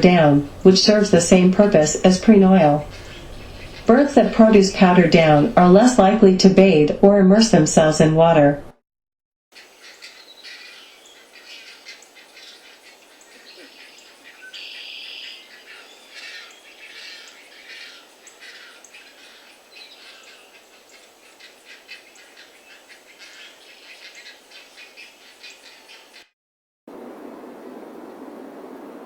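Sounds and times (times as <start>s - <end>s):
buzzy bird trill: 0.0s - 5.8s, 9.6s - 26.3s
birds chirping: 0.0s - 6.1s, 9.6s - 26.3s.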